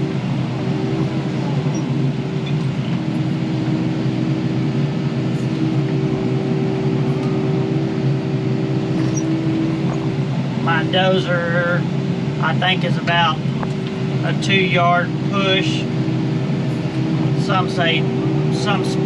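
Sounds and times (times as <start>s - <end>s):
excavator diesel engine droning: 0.0s - 19.0s.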